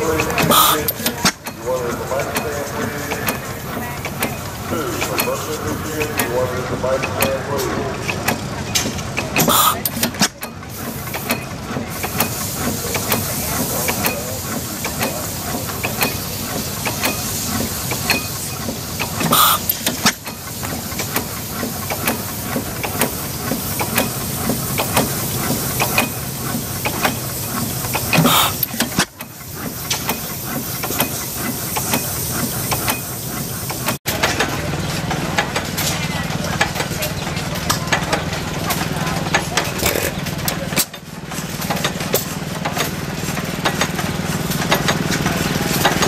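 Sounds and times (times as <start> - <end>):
stationary engines running: 0.0 - 46.0.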